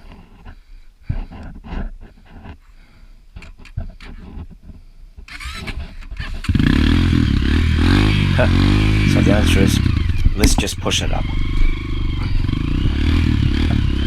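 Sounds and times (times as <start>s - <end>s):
knocks and scuffs: 10.4s - 11.4s.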